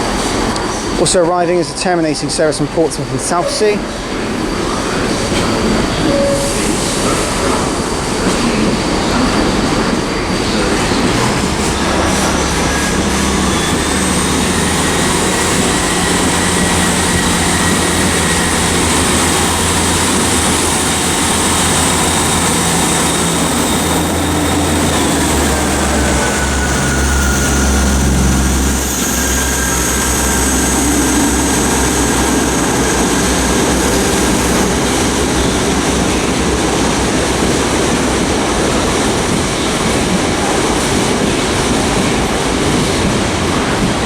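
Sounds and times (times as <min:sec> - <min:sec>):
train wagons rolling on rails: 0:00.0 - 0:44.0
high wheel squeals: 0:08.6 - 0:35.6
low diesel engine note: 0:10.0 - 0:35.9.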